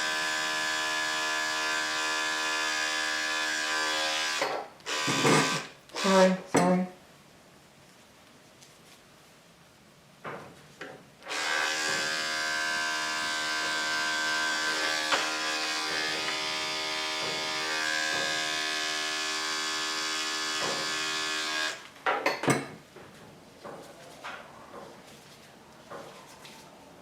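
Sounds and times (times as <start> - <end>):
electric clippers buzzing: 0.0 - 6.4, 11.2 - 21.9.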